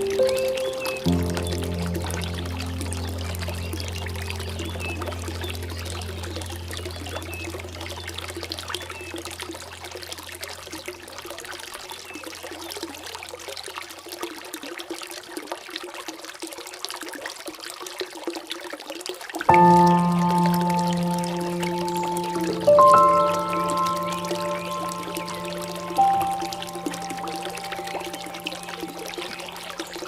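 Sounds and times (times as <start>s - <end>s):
low music drone: 0.0s - 10.3s, 19.5s - 30.0s
crackling drips: 0.0s - 30.0s
water trickling and splashing: 0.0s - 30.0s.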